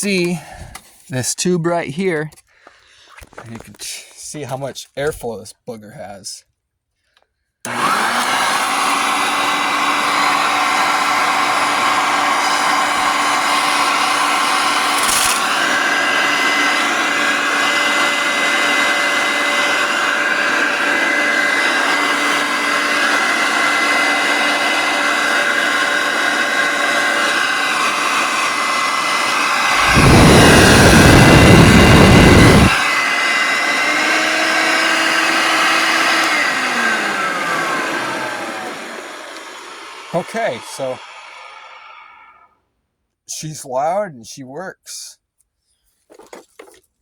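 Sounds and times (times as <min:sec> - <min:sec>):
vacuum cleaner motor whine: 0:07.7 - 0:42.5.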